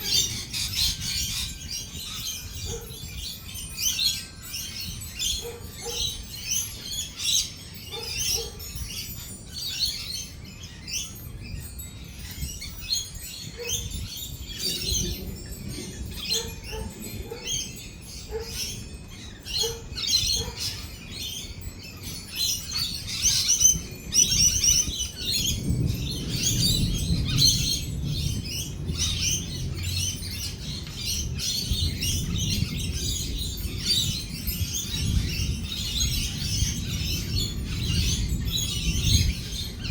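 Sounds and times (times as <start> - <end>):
lorikeets chattering and screeching: 0.0 - 39.9
low roll of thunder: 14.5 - 17.0, 24.2 - 39.9.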